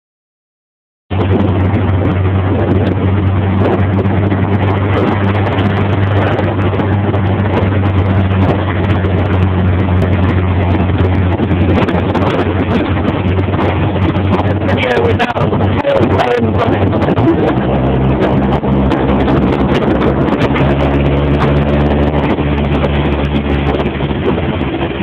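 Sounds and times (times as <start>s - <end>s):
buggy engine humming: 1.1s - 25.0s
rushing noise: 1.1s - 25.0s.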